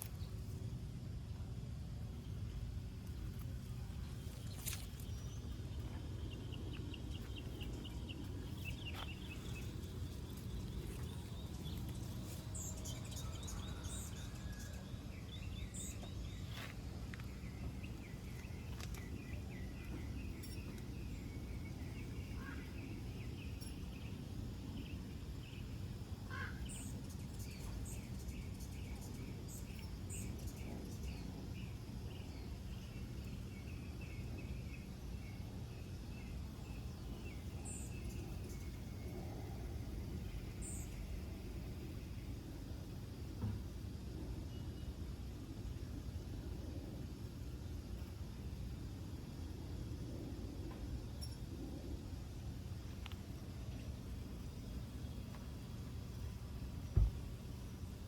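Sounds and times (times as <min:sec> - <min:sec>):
low outdoor rumble: 0:00.0 - 0:58.0
small birds chirping and trilling: 0:02.3 - 0:43.6.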